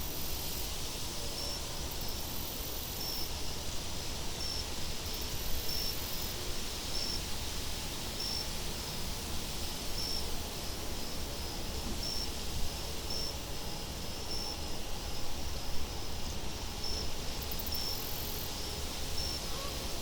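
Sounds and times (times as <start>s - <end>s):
thin high hiss: 0.0s - 16.2s
cricket chirping: 16.8s - 19.6s.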